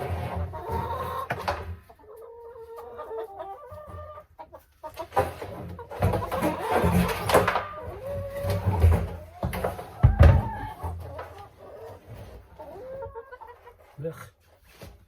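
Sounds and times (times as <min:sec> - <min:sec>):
hens clucking: 0:00.0 - 0:14.9
knocks: 0:08.6 - 0:10.6.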